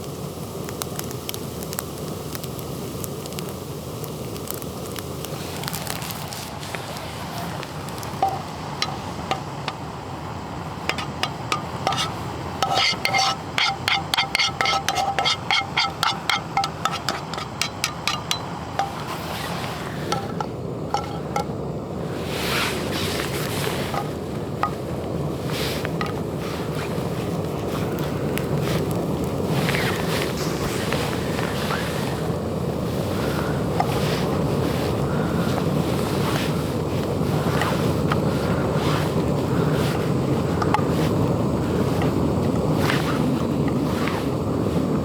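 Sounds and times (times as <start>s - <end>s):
campfire crackling: 0.0s - 45.0s
metal utensil striking metal pot: 8.2s - 9.8s, 10.9s - 19.1s.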